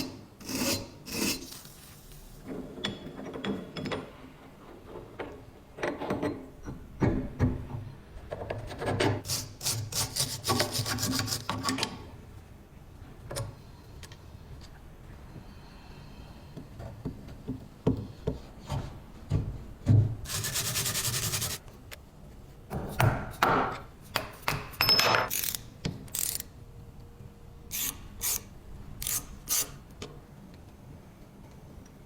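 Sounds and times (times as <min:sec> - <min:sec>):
rasping and scraping strokes: 0:00.4 - 0:02.2, 0:20.3 - 0:21.6.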